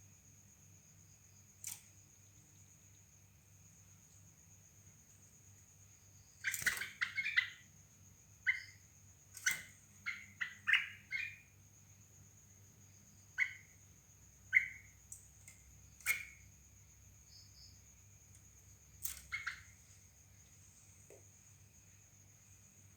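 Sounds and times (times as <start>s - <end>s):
bird chirping calls: 6.2s - 11.6s, 13.2s - 16.5s, 19.0s - 20.0s.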